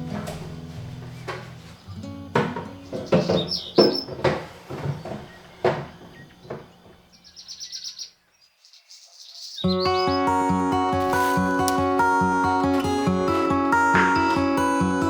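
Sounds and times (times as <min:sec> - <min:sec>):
small bird chirping: 0:01.7 - 0:10.4
knocks and clatters: 0:02.4 - 0:07.0.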